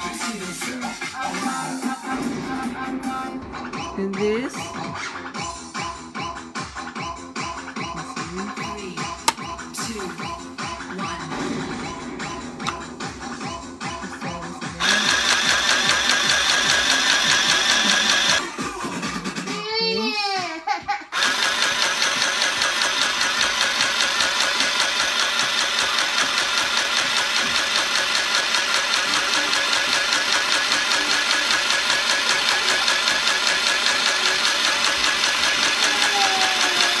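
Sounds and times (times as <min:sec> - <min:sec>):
sewing machine stitching: 0:14.8 - 0:18.4, 0:21.2 - 0:37.0.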